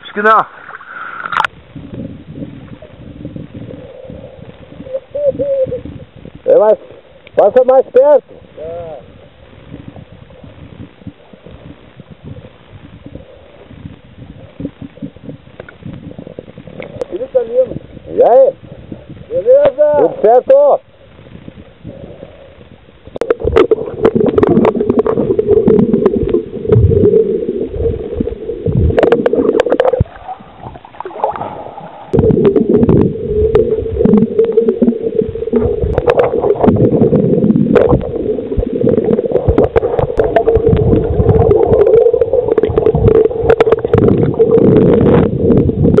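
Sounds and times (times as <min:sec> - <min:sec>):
wind buffeting microphone: 0:01.5 - 0:06.8, 0:08.4 - 0:46.0
water splashing along hull: 0:20.8 - 0:46.0.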